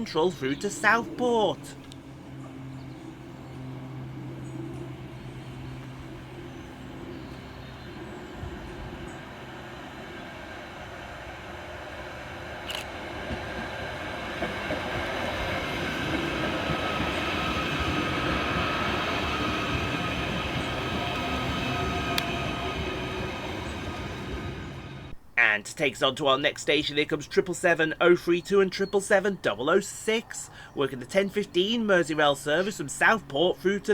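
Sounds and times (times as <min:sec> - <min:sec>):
electric train running: 0:00.0 - 0:25.2.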